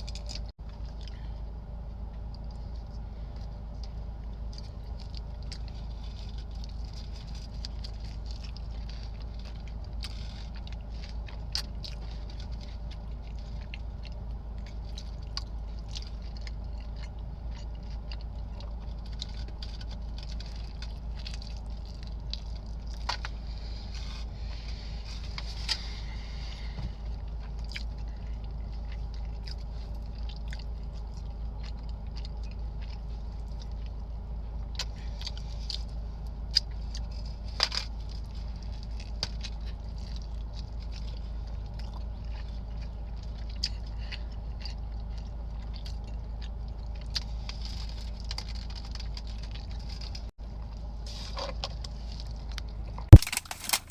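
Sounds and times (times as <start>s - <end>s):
steady low hum: 0.0s - 53.9s
chewing mouth clicks and smacks: 2.2s - 23.4s, 27.2s - 34.1s, 36.5s - 50.3s.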